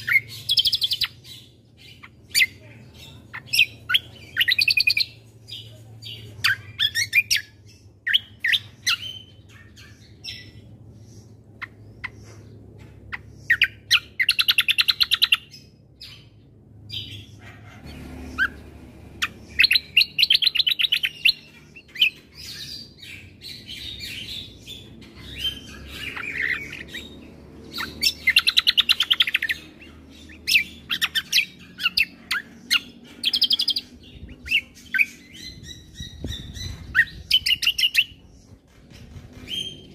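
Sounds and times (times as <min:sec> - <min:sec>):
bird chirps and rattling trills: 0:00.0 - 0:39.9.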